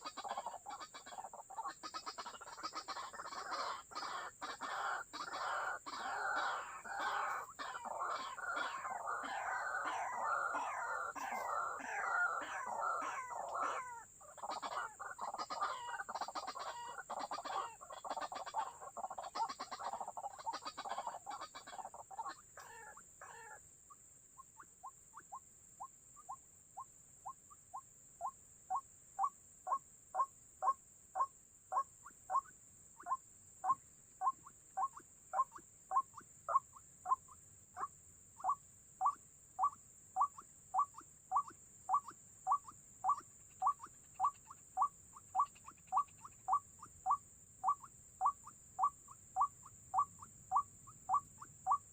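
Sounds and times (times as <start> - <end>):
waterhen calling: 0.0 - 23.6, 37.8 - 51.9.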